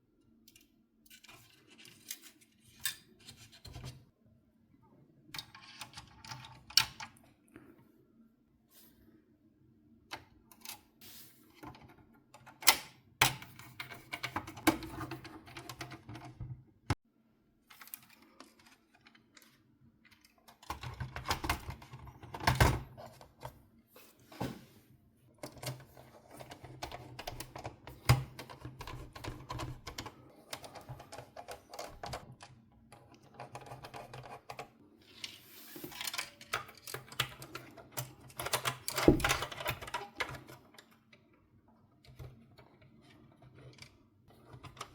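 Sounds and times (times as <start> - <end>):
small parts and tools clicking: 0.4 - 4.0.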